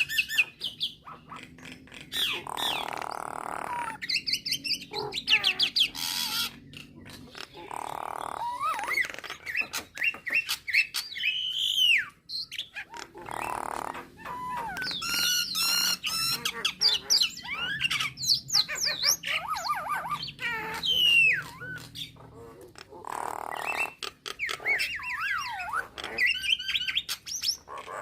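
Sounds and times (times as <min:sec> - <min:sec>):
bird trill: 0:00.0 - 0:22.5, 0:23.1 - 0:28.0
myna bird whistling and chattering: 0:00.0 - 0:28.0.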